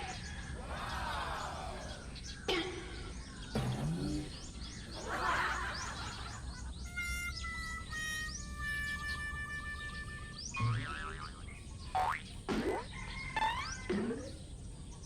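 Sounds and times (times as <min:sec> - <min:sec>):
birds chirping: 0:00.0 - 0:15.0
steady musical tones: 0:03.6 - 0:11.8.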